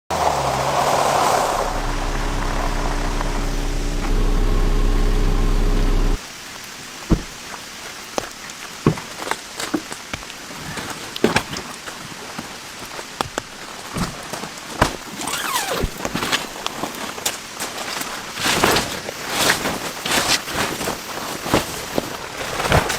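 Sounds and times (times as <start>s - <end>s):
steady rain: 0.2s - 10.5s
falling tone: 0.3s - 6.2s
car engine idling: 0.4s - 6.2s.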